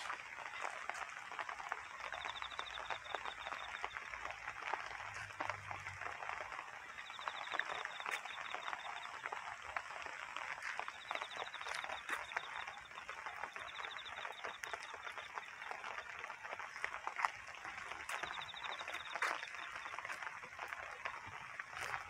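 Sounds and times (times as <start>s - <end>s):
rain pattering on leaves: 0.0s - 22.0s.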